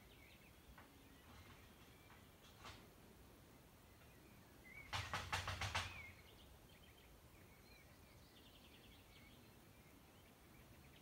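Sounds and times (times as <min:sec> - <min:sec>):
burst of rapid clicks: 0:04.9 - 0:06.0.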